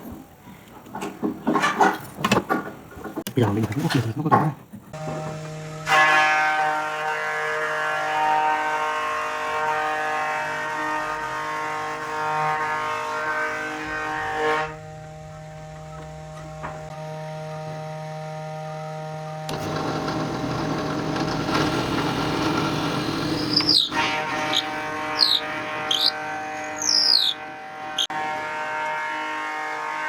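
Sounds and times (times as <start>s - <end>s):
power tool motor whining: 19.5s - 28.1s.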